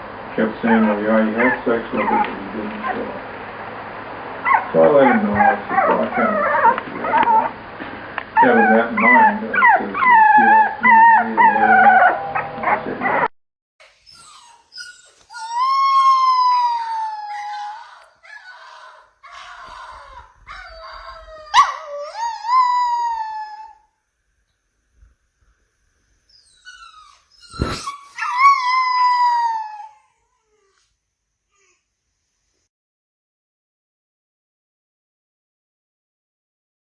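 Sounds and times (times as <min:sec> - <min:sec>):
small dog whining and howling: 0:00.7 - 0:03.0, 0:04.5 - 0:07.6, 0:08.4 - 0:13.3, 0:14.0 - 0:23.9, 0:26.3 - 0:30.8.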